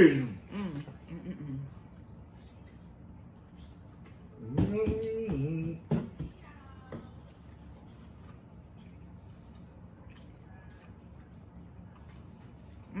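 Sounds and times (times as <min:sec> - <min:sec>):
steady low hum: 0:00.0 - 0:13.0
wet chewing clicks and smacks: 0:07.7 - 0:13.0.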